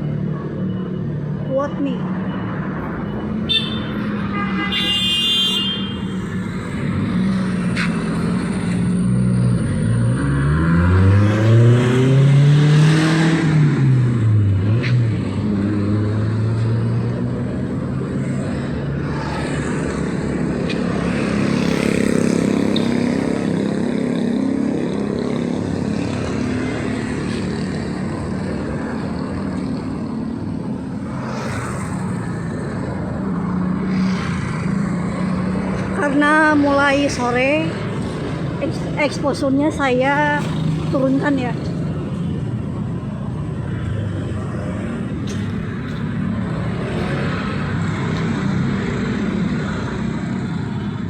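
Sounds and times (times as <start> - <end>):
passing traffic hum: 0.0 - 51.0
vehicle engine revving: 9.2 - 15.0.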